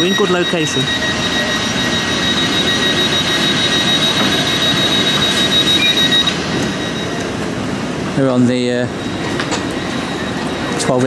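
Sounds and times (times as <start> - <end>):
high-pitched tone: 0.0 - 7.6.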